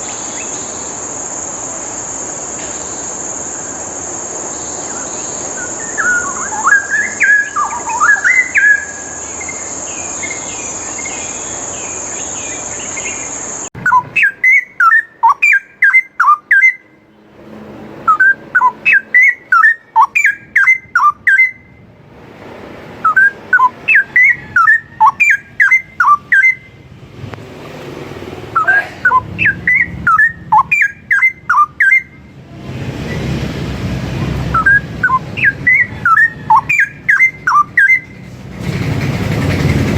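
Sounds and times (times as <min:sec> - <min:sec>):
high shrill insect tone: 0:00.0 - 0:13.7
bird singing whistled phrases: 0:04.6 - 0:16.9, 0:18.1 - 0:21.8, 0:23.0 - 0:26.8, 0:28.6 - 0:32.2, 0:34.5 - 0:38.2.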